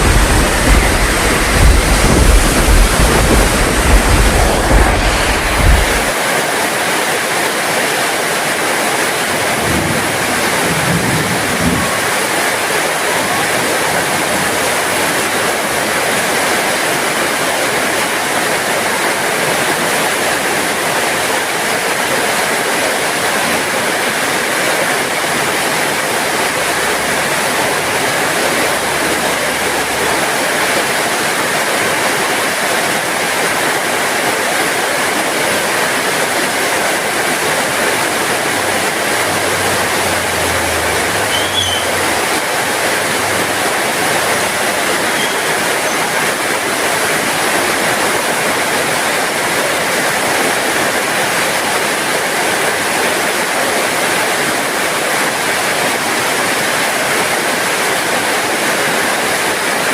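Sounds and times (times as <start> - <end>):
low rumble: 0.0 - 6.1
low thuds: 0.0 - 6.1
heavy rain falling: 0.0 - 59.9.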